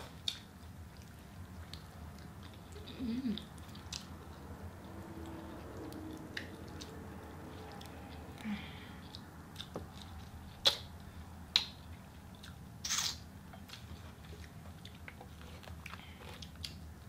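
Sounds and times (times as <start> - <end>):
chewing chicken wings: 0.1 - 12.6
wet mouth clicks and smacks: 9.1 - 10.9, 12.4 - 13.2
short hissing suck: 12.8 - 13.2.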